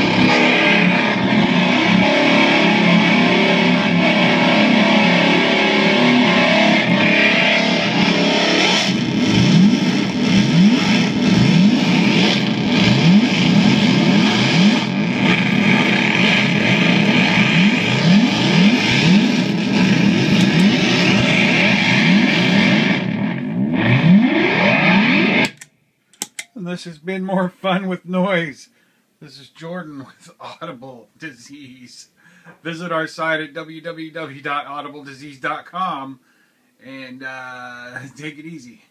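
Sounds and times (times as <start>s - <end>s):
distorted feedback noise with pitch sweeps: 0.0s - 25.6s.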